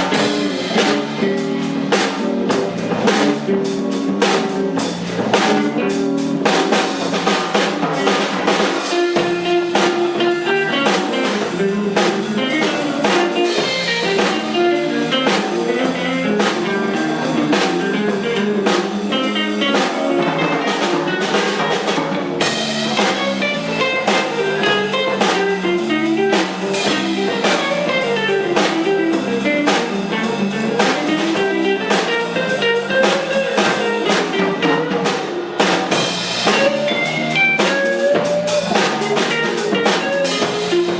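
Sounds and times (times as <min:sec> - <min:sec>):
drum kit beat: 0:00.0 - 0:40.9
guitar playing: 0:00.0 - 0:40.9
live band playing: 0:00.0 - 0:40.9.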